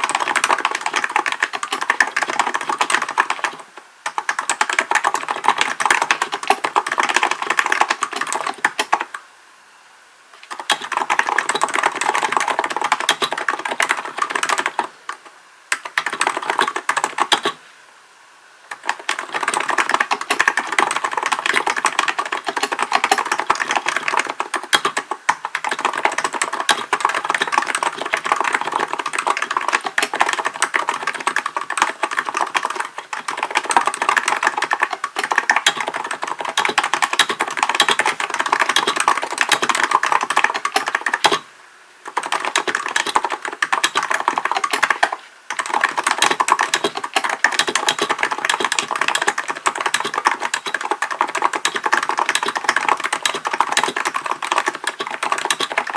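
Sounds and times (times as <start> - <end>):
fast keyboard typing: 0.0 - 9.2, 10.4 - 17.6, 18.7 - 55.9.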